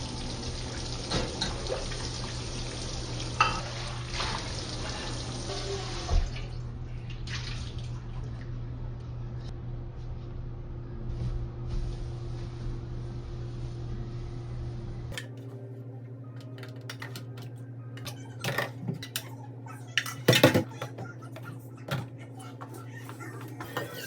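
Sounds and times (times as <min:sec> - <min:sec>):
steady low hum: 0:06.3 - 0:23.9
dishes and utensils clattering: 0:15.1 - 0:15.5, 0:16.4 - 0:24.0.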